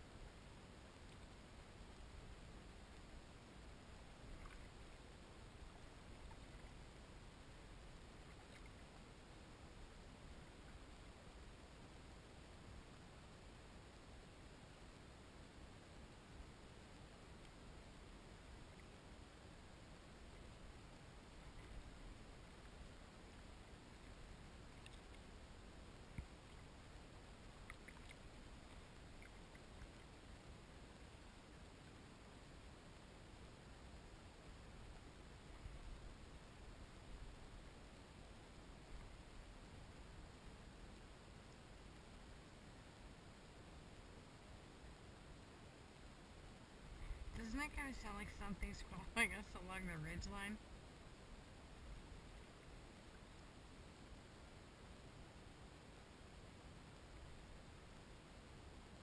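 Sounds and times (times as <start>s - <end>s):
faint steady hiss: 0.0s - 59.0s
faint water drips: 2.9s - 9.2s, 17.0s - 33.0s
small clicks: 27.6s - 30.0s.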